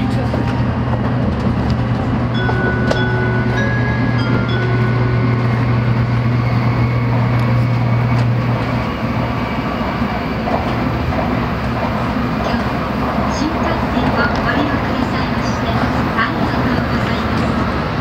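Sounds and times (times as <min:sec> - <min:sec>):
strong low hum: 0:00.0 - 0:13.3
train rushing and rumbling: 0:00.0 - 0:18.0.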